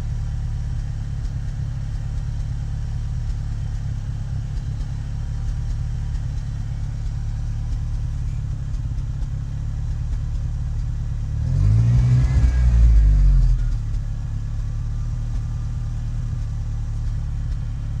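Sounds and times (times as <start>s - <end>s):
car engine idling unevenly: 0.0s - 18.0s
engine revving: 11.2s - 14.0s.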